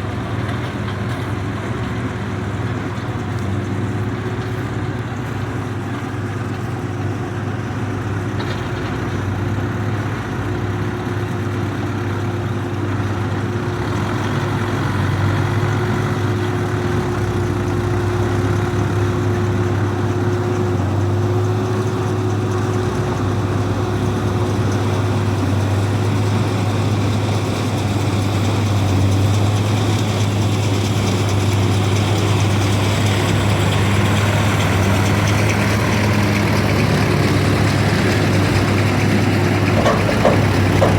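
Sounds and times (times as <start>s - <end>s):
diesel engine droning: 0.0s - 40.9s.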